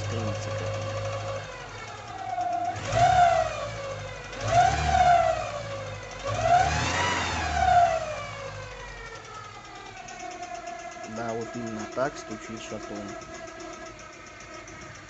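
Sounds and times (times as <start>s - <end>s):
car engine revving: 0.0s - 15.0s
engine rod knock: 9.7s - 15.0s.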